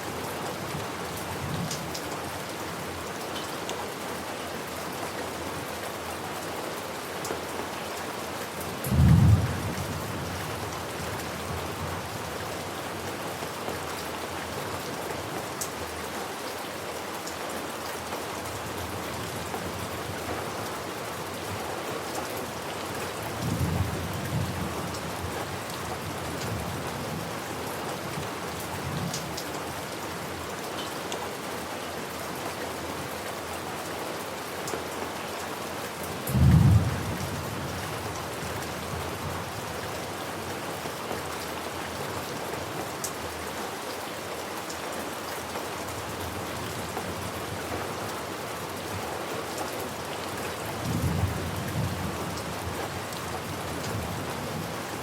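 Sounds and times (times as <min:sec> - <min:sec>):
steady rain: 0:00.0 - 0:55.0
thunder rumbles: 0:08.9 - 0:10.4, 0:36.3 - 0:37.8.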